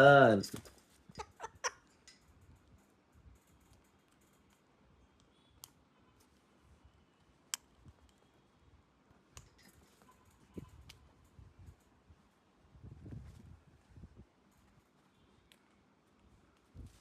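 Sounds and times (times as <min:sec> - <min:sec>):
sharp clicks: 0:01.8 - 0:05.8.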